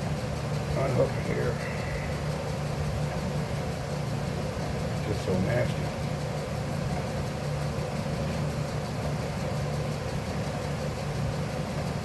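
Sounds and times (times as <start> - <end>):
machine humming: 0.0 - 8.3.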